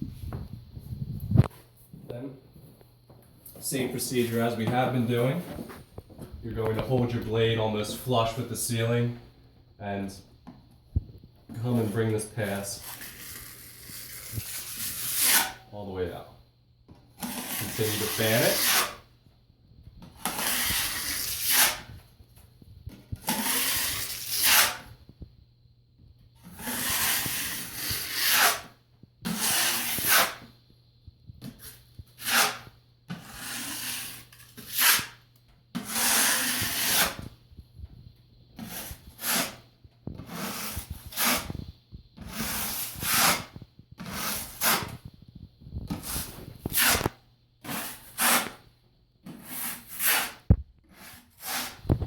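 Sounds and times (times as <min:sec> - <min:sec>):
drywall blade scraping: 0:11.6 - 0:15.7, 0:17.1 - 0:19.1, 0:20.0 - 0:22.0, 0:22.9 - 0:25.0, 0:26.4 - 0:30.5, 0:31.4 - 0:37.3, 0:38.6 - 0:45.1, 0:45.9 - 0:52.0.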